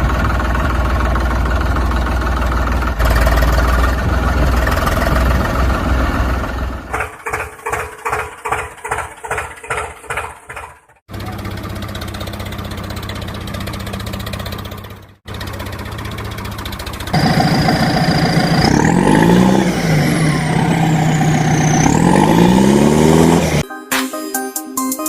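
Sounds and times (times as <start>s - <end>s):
tractor engine running: 0.0s - 23.6s
high whine: 17.2s - 23.6s.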